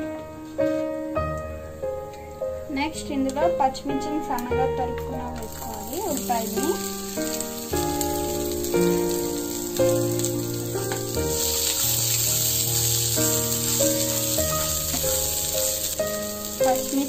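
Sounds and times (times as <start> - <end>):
background music of held chords: 0.0 - 17.0
onions sizzling in oil: 2.0 - 17.0
spatula stirring in pan: 5.5 - 17.0.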